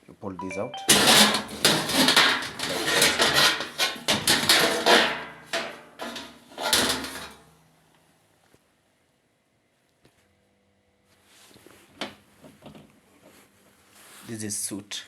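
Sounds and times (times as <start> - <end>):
sheet metal clattering and scraping: 0.9 - 7.4.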